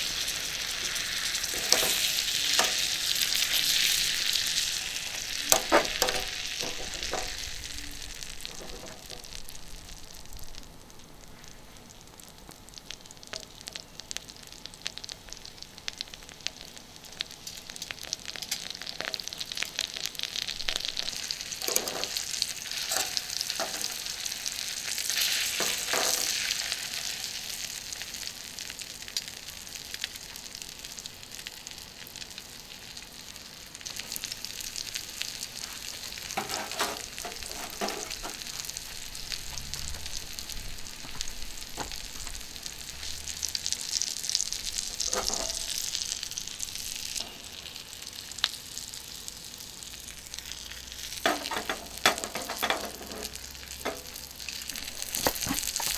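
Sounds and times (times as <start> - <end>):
chicken sizzling in butter: 0.0 - 55.9
utensil scraping a pan: 0.1 - 7.7, 8.4 - 9.4, 21.1 - 26.9, 35.6 - 38.6, 44.8 - 46.0, 51.1 - 55.9.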